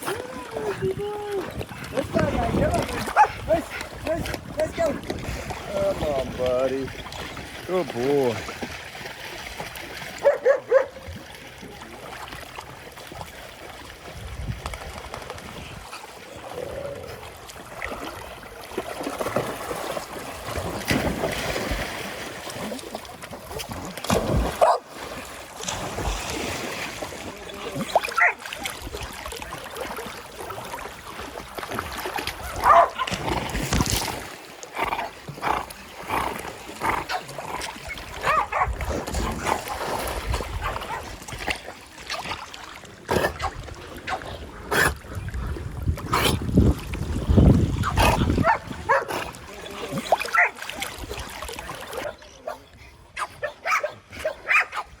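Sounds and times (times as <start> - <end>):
splashing water: 0.0 - 54.9
dogs barking and whimpering: 10.2 - 11.0, 32.5 - 33.1, 38.2 - 38.7, 50.3 - 50.6, 53.2 - 54.9.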